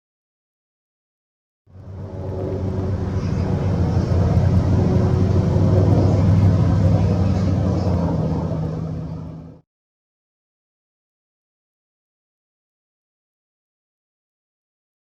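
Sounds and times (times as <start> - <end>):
helicopter rotors and engines drone: 1.7 - 9.6.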